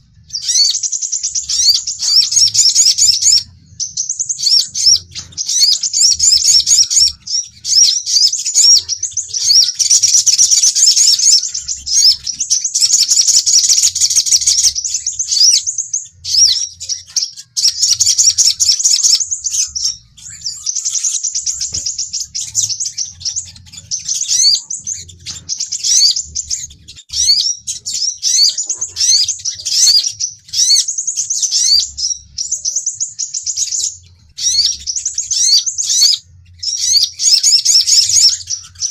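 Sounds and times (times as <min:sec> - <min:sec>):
sunbirds twittering and chirping: 0:00.0 - 0:38.9.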